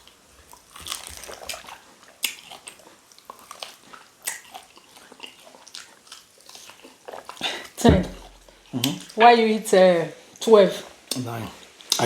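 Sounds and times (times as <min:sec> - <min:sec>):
wet chewing and biting: 0:00.0 - 0:09.2.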